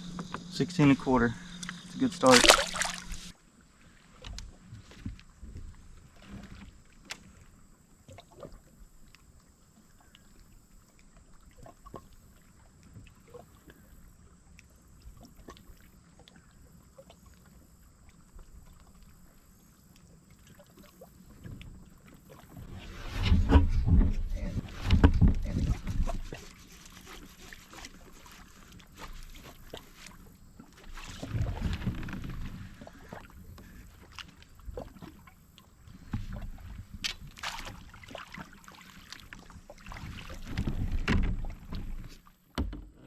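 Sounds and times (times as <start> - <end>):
low rumble: 0.0 - 3.3
faint water: 0.0 - 43.0.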